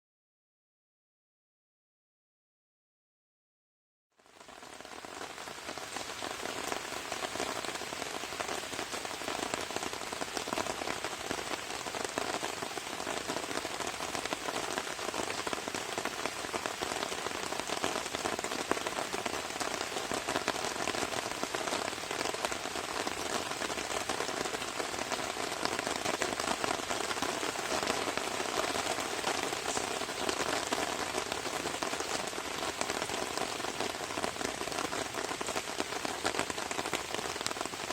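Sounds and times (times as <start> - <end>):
rain on a tarp: 4.1 - 37.9.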